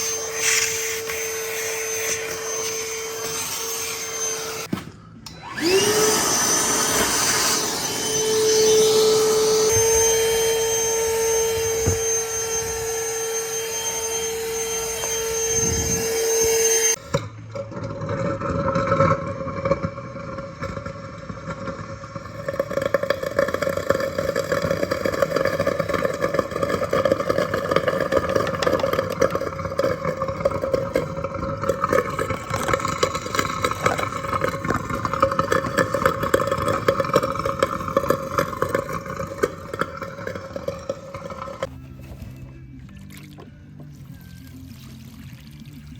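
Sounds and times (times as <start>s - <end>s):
vacuum cleaner motor whine: 0.0s - 17.6s, 19.9s - 41.7s
rattling motor: 5.3s - 41.7s.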